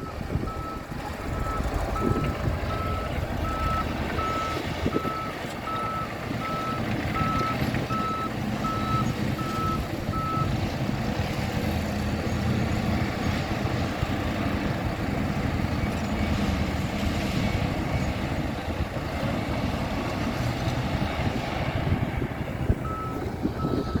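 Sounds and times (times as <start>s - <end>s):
reversing alarm beeping: 0.0s - 10.5s, 22.8s - 24.0s
bulldozer diesel engine running: 0.0s - 24.0s.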